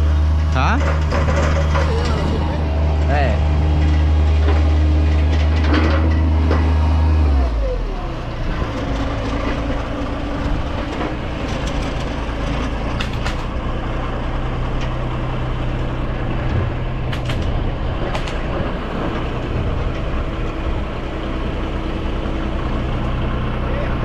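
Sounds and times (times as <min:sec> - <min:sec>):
engine humming: 0:00.0 - 0:24.0
sharp clicks or knocks: 0:12.6 - 0:13.5, 0:16.5 - 0:18.7.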